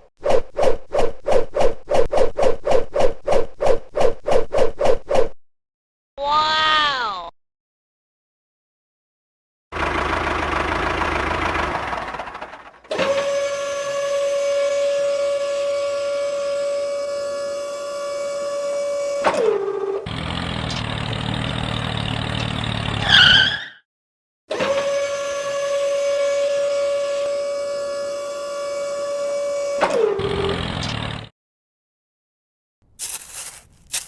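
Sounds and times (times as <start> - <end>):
brief warbling squeal: 23.0 - 23.8.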